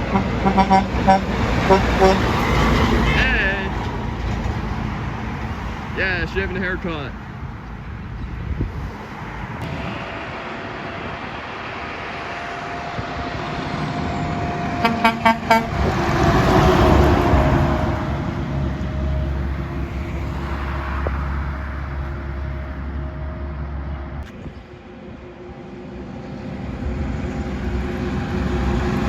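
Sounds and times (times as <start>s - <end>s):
truck horn toots: 0.0s - 3.6s, 12.5s - 19.4s
truck passing: 0.0s - 29.0s.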